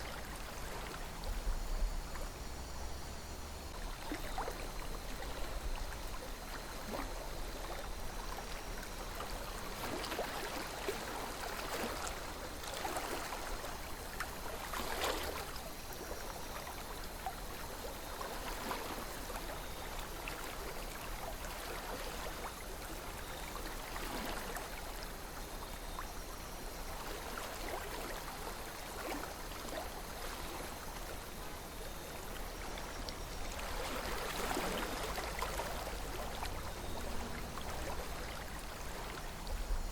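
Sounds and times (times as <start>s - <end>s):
river water flowing: 2.0s - 39.9s
water splashing and gurgling: 3.6s - 19.8s, 26.8s - 39.9s.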